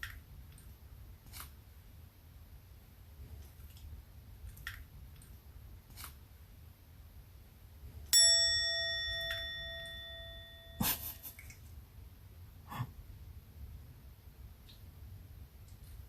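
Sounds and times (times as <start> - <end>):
bright bell ding: 8.2 - 11.2.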